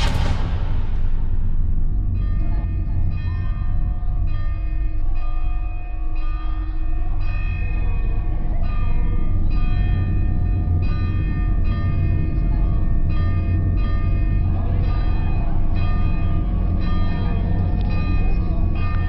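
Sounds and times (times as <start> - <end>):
deep low drone: 0.0 - 4.4
large bell tolling: 0.0 - 4.6.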